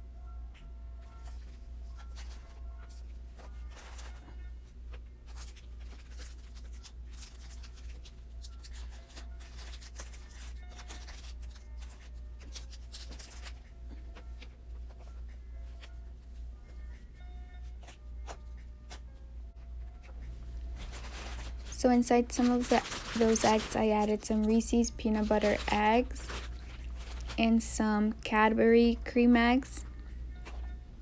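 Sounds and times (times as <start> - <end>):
quiet lo-fi music: 0.0 - 31.0
paper and plastic wrappers crinkling: 1.1 - 4.4, 5.2 - 15.9, 20.0 - 30.7.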